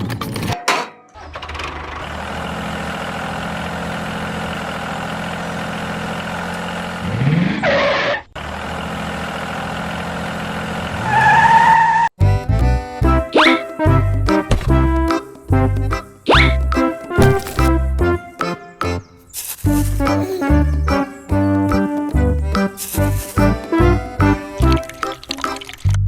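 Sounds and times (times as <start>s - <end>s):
music: 12.2s - 26.0s.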